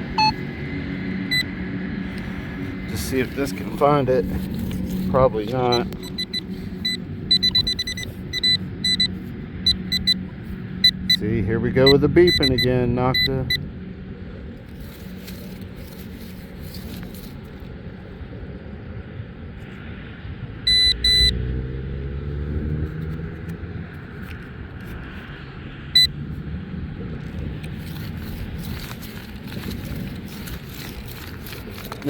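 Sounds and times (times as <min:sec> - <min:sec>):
metal detector beeps: 0:00.0 - 0:00.4, 0:01.3 - 0:01.5, 0:05.3 - 0:10.2, 0:10.8 - 0:13.6, 0:20.7 - 0:21.4
wind rumble on microphone: 0:00.0 - 0:32.0.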